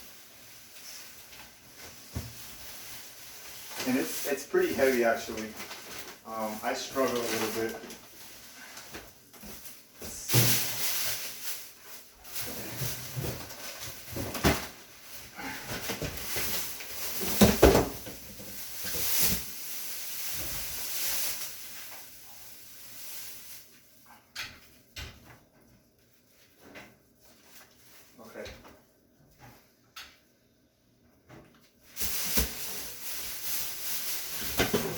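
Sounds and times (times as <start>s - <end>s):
styrofoam and paper rustling: 0.0s - 23.9s, 31.8s - 34.9s.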